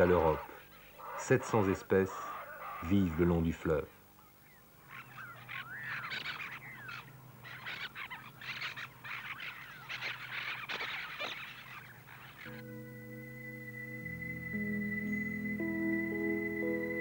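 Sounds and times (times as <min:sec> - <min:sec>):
tropical birds squawking: 0:00.0 - 0:17.0
held music chord: 0:12.5 - 0:17.0.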